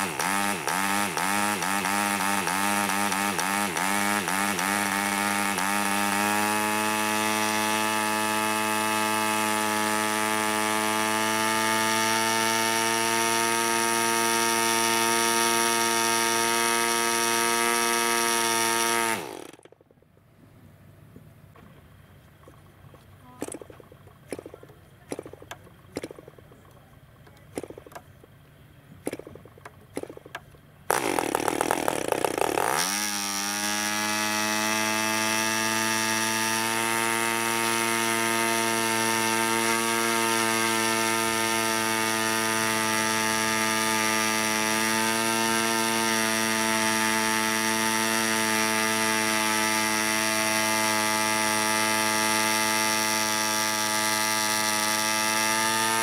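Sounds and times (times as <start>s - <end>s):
model engine running high-pitched: 0.0s - 19.7s, 30.9s - 56.0s
propeller flick clicks: 19.5s - 32.7s.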